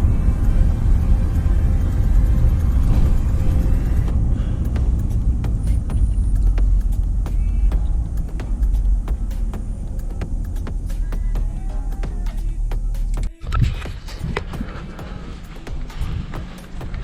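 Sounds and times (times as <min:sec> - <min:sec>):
truck engine and road rumble: 0:00.0 - 0:17.0.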